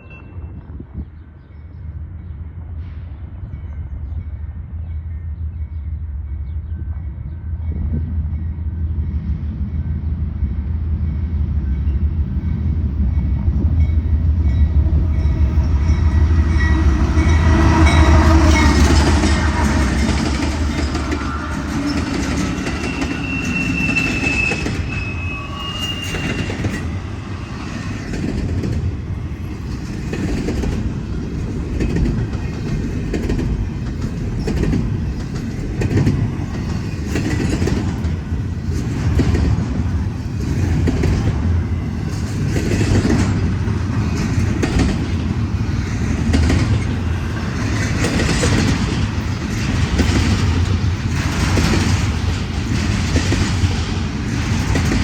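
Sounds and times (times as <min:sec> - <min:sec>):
freight train rumbling: 0:00.0 - 0:55.0
wheels clacking over rail joints: 0:12.5 - 0:25.2, 0:26.0 - 0:55.0
high wheel squeal: 0:15.1 - 0:27.9.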